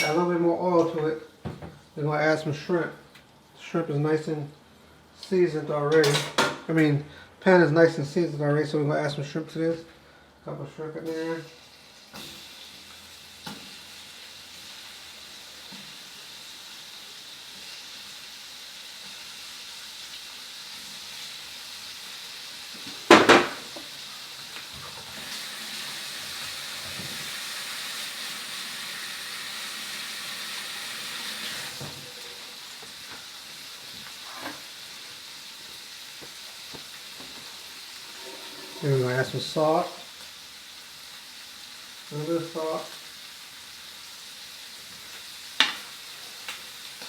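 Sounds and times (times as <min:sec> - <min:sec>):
shrimp sizzling in hot oil: 0:11.0 - 0:47.0.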